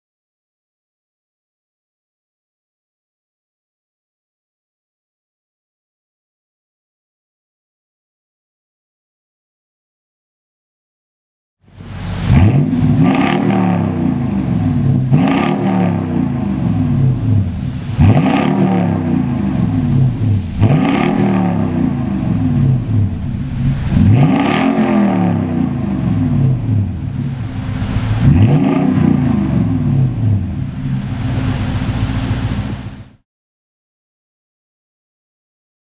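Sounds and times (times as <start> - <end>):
truck engine idling and revving: 11.7 - 33.2.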